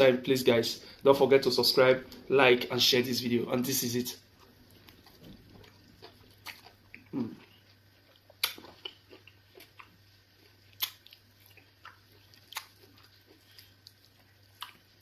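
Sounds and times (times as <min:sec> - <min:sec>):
faint low hum: 0:00.0 - 0:15.0
wet chewing and lip smacks: 0:04.3 - 0:15.0.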